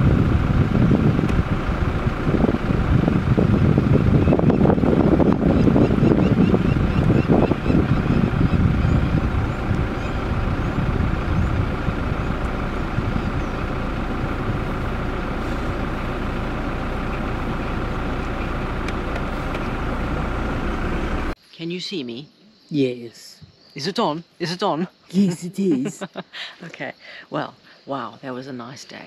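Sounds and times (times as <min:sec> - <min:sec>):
vehicle engine idling: 0:00.0 - 0:21.4.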